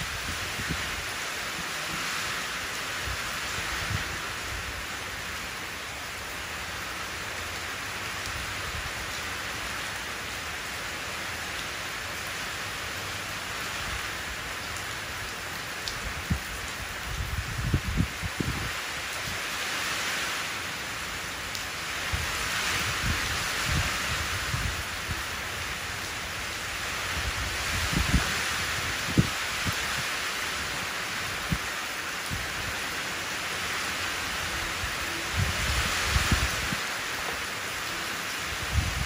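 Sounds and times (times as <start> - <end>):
rain falling into puddle: 5.1 - 19.6.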